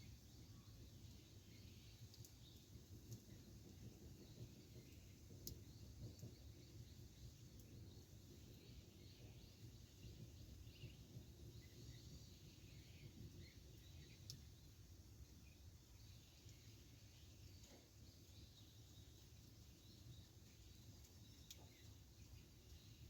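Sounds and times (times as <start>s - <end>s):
campfire crackling: 0.0s - 23.0s
faint bird chirps: 4.2s - 23.0s.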